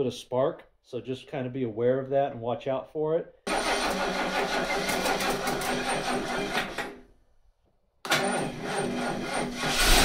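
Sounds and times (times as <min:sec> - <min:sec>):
starter motor cranking engine: 0:03.5 - 0:06.8, 0:08.1 - 0:10.0.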